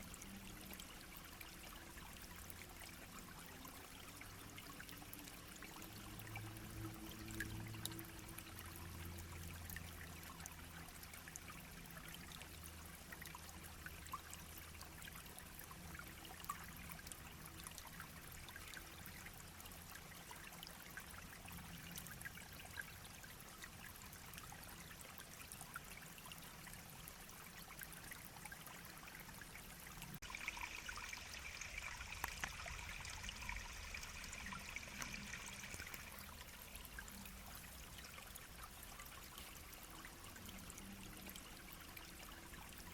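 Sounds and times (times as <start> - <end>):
brook babbling over stones: 0.0 - 42.9.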